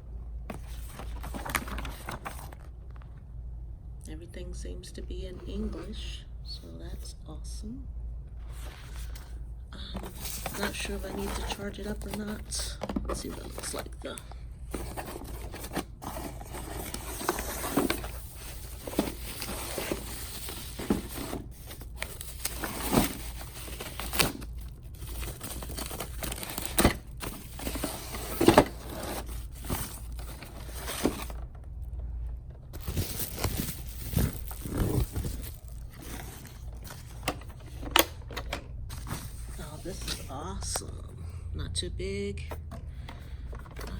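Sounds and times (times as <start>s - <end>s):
cardboard rustling: 0.4s - 3.1s, 8.4s - 40.7s
plastic crinkling and tearing: 14.9s - 31.4s, 32.8s - 37.2s.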